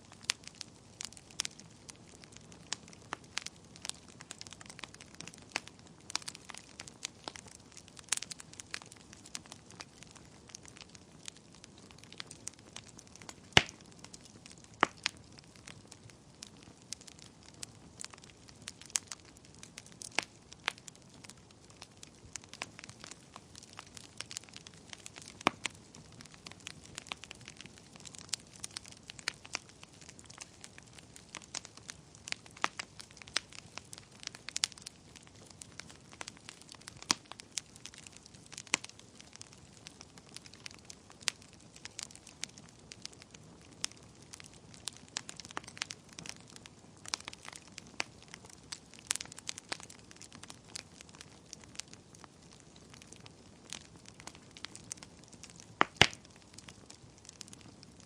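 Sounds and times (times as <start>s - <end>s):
wood fire crackling: 0.0s - 58.0s
sharp fire pops: 13.2s - 15.2s, 52.5s - 57.8s.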